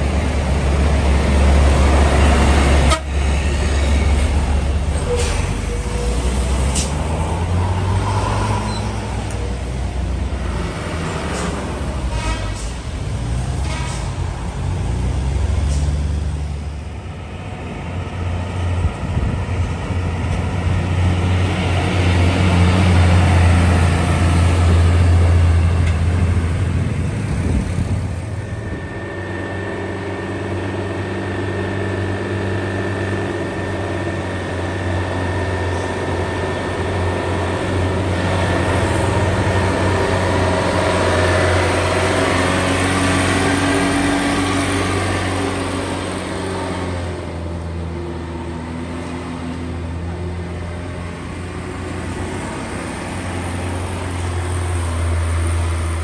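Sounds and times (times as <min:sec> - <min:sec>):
diesel trucks driving past: 0:00.0 - 0:56.0.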